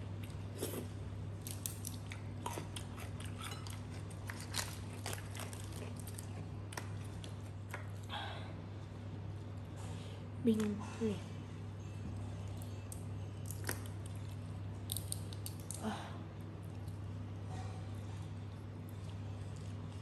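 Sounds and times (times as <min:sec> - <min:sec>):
person chewing crab: 0:00.1 - 0:08.1.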